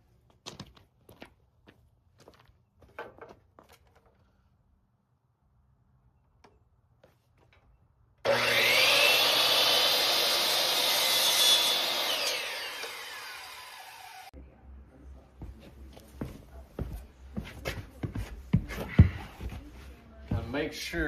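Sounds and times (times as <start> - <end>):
electric power saw cutting: 8.2 - 14.3.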